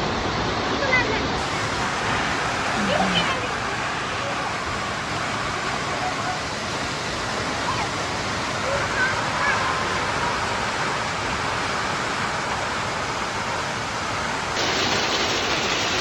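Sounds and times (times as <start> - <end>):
hail and rain pelting: 14.6 - 16.0.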